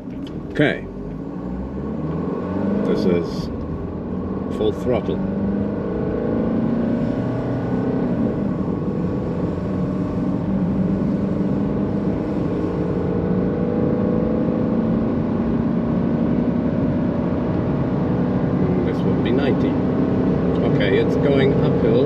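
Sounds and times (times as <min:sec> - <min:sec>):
diesel engine accelerating hard: 0:00.0 - 0:22.0.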